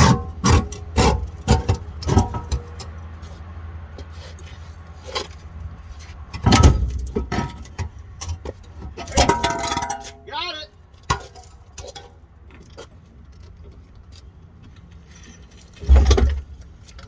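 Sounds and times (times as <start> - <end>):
metal clanking and rattling: 0.0 - 3.0, 6.3 - 10.3, 14.7 - 17.0.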